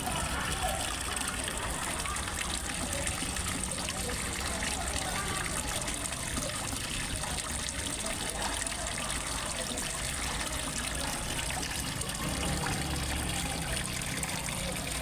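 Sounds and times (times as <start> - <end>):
waterfall splashing into pond: 0.0 - 15.0.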